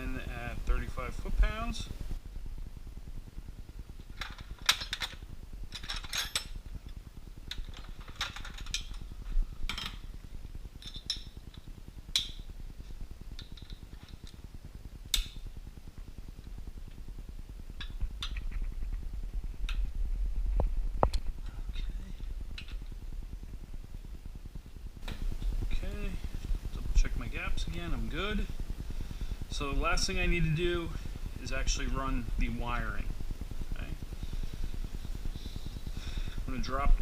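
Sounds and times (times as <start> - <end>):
wrench and sockets clinking: 4.2 - 6.6, 10.8 - 11.4.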